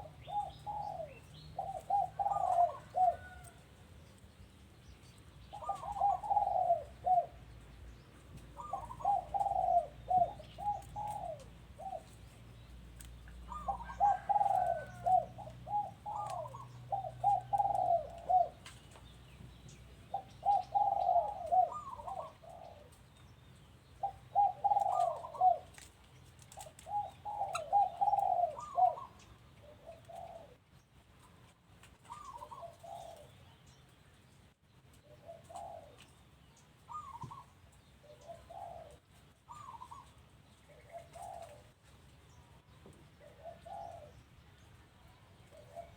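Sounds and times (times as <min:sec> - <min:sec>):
doves cooing: 0:00.0 - 0:03.6, 0:05.5 - 0:07.6, 0:08.4 - 0:12.6, 0:13.2 - 0:19.0, 0:20.0 - 0:23.2, 0:24.0 - 0:30.7, 0:32.0 - 0:33.4, 0:34.9 - 0:36.3, 0:36.9 - 0:42.0, 0:42.7 - 0:44.3, 0:45.1 - 0:45.9.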